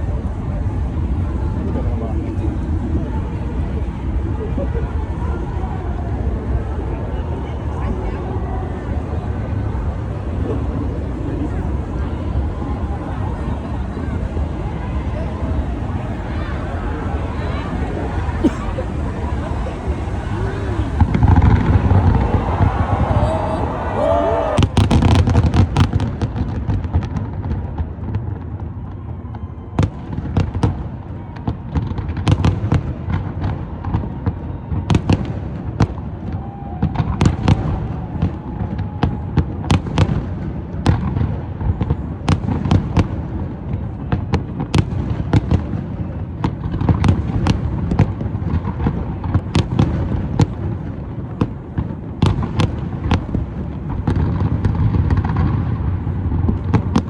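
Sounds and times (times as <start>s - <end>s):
low rumble and hiss: 0.0s - 26.0s
firework bangs and crackles: 0.0s - 57.0s.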